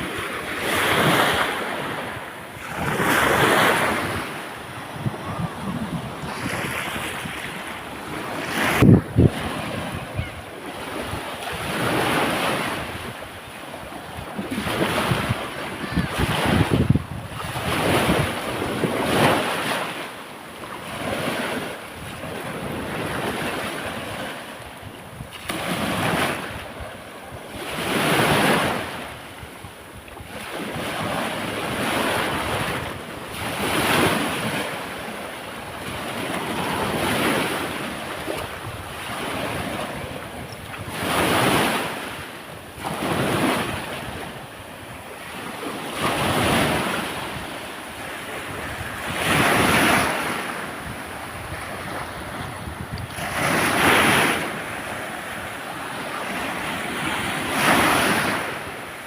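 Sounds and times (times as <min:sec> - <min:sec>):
wind on microphone: 0:00.0 - 0:19.9, 0:20.9 - 0:59.0
sea waves breaking: 0:00.0 - 0:59.0.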